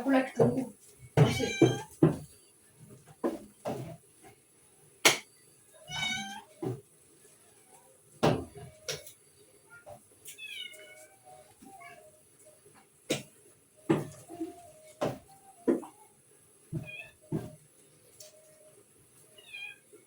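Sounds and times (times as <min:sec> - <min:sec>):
cat meowing: 0:01.2 - 0:02.0, 0:05.8 - 0:06.6, 0:09.7 - 0:12.2, 0:19.4 - 0:19.8.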